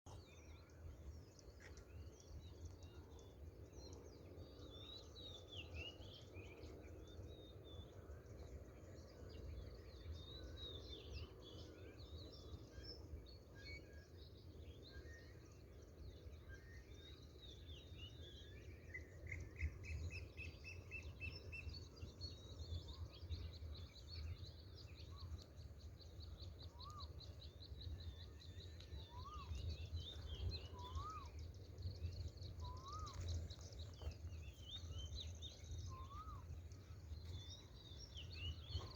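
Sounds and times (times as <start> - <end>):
birds chirping: 20.5 - 38.9
low outdoor rumble: 21.8 - 38.9.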